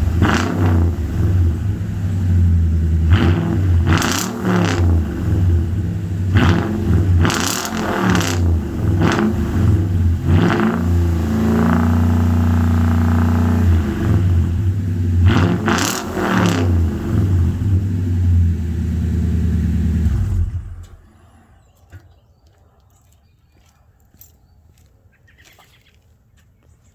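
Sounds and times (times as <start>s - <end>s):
truck engine revving: 0.0s - 21.5s.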